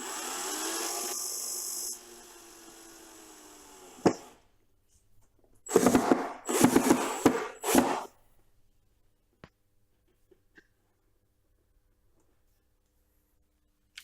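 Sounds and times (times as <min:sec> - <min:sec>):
power drill motor spinning down: 0:00.0 - 0:04.4.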